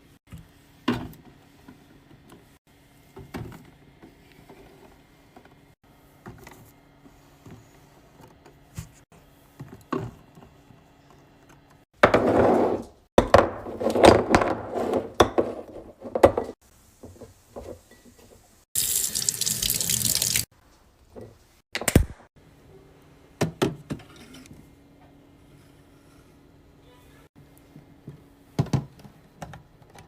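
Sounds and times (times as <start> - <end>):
water running from a tap: 18.8 - 20.5.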